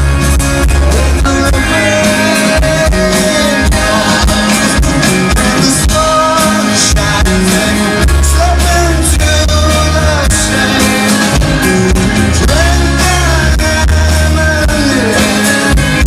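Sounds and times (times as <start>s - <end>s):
rock band playing live: 0.0s - 16.0s
person singing long notes: 0.6s - 11.2s.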